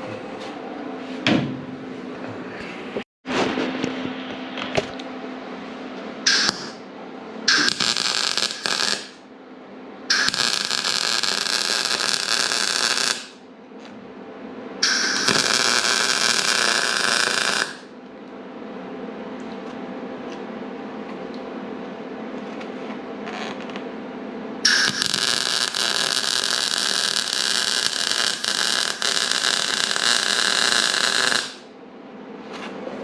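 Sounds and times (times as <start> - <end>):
steady low hum: 0.0 - 33.0
welder arc crackling: 6.3 - 6.8, 7.5 - 9.2, 10.1 - 13.4, 14.8 - 17.9, 24.7 - 31.7.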